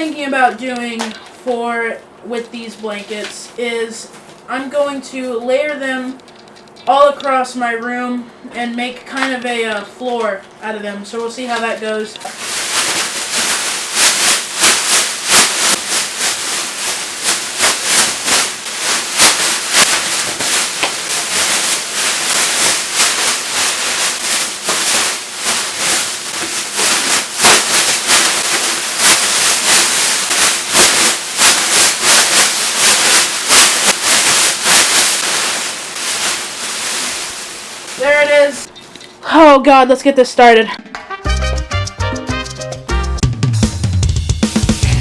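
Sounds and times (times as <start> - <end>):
foil blanket crinkling: 11.2 - 38.7.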